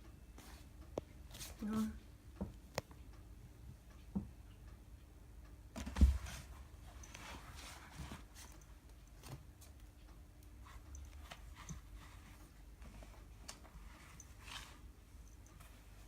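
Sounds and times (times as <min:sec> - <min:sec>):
soft cloth rustling: 0:06.1 - 0:09.2, 0:10.6 - 0:16.0.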